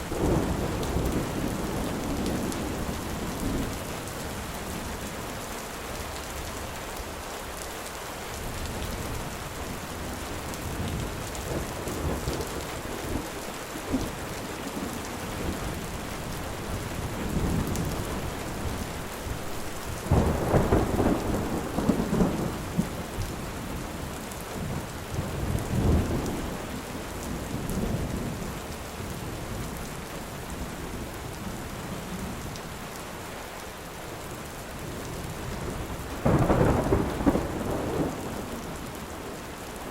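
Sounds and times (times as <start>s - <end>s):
steady rain: 0.0s - 39.9s
rolling thunder: 10.2s - 24.0s, 34.8s - 39.4s.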